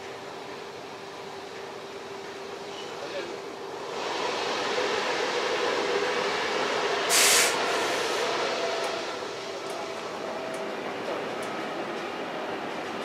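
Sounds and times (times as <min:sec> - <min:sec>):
train interior running noise: 0:00.0 - 0:13.0
short sharp hiss: 0:07.1 - 0:08.0.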